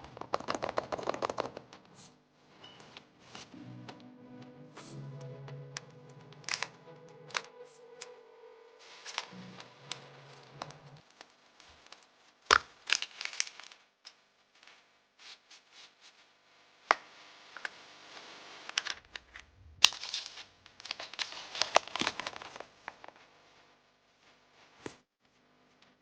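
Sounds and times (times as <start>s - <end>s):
foil wrapper crinkling: 11.0s - 13.8s, 19.8s - 23.2s
sharp foil cracks: 11.0s - 13.9s, 19.8s - 23.1s.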